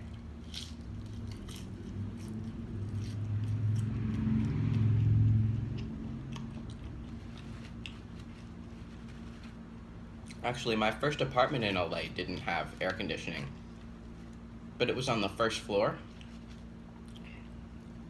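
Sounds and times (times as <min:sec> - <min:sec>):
person chewing fries: 0:00.0 - 0:10.4, 0:16.1 - 0:17.6
low rumble: 0:01.9 - 0:08.4.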